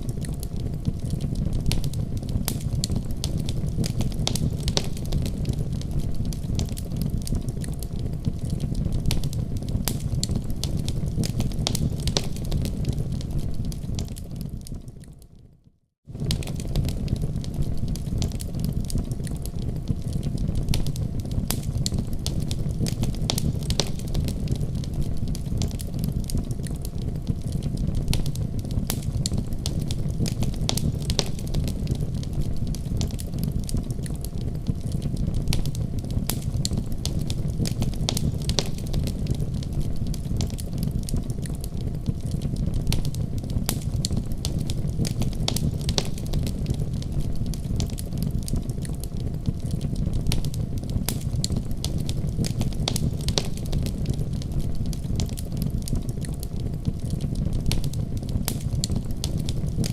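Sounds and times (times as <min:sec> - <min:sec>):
wood fire crackling: 0:00.0 - 0:15.4, 0:16.0 - 0:59.9.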